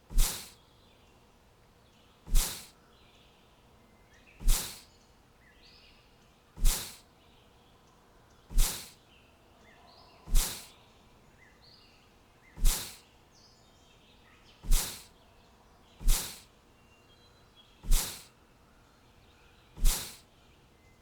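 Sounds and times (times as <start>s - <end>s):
sharp hissing bursts: 0.0s - 0.6s, 2.3s - 2.7s, 4.4s - 4.9s, 6.6s - 7.0s, 8.5s - 9.0s, 10.3s - 10.7s, 12.6s - 13.0s, 14.6s - 15.1s, 16.0s - 16.5s, 17.8s - 18.3s, 19.8s - 20.2s
faint bird chirps: 0.0s - 21.0s.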